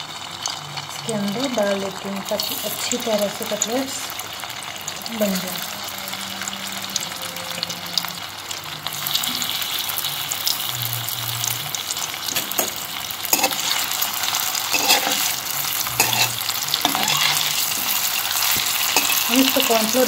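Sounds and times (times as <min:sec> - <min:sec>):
food sizzling in oil: 0:00.0 - 0:20.0
metal spatula scraping pan: 0:12.4 - 0:20.0.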